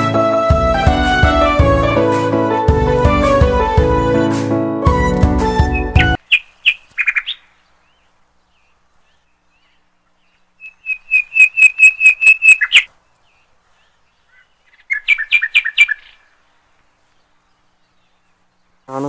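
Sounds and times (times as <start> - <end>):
bird whistling rapid notes: 5.6 - 7.4, 10.6 - 12.9.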